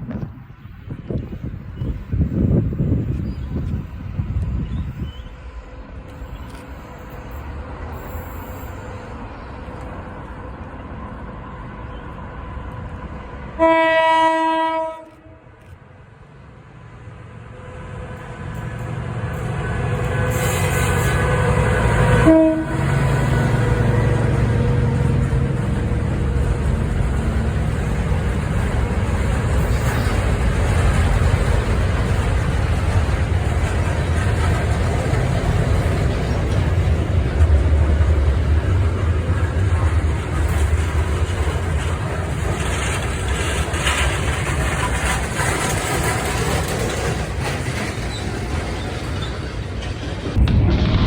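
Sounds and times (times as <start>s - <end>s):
train rumble: 0.0s - 51.0s
train horn blast: 13.5s - 15.6s, 20.0s - 25.3s.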